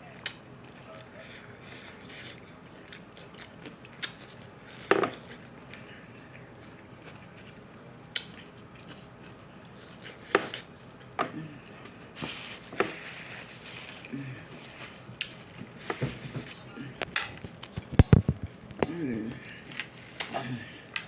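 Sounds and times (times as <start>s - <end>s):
crunching taco shells: 0.2s - 11.2s.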